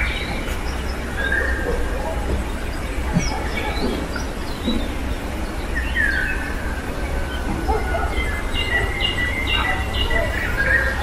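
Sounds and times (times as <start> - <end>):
birds singing: 0.0 - 11.0.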